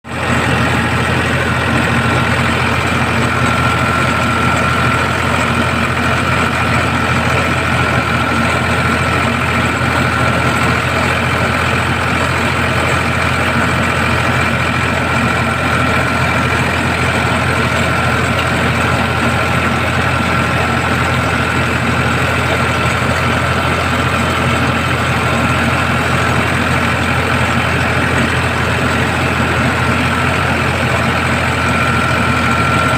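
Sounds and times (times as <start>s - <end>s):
tractor engine idling: 0.0s - 32.9s.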